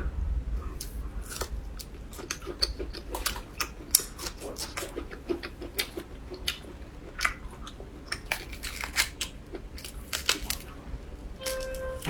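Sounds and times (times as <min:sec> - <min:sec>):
chewing seafood: 0:00.7 - 0:12.0.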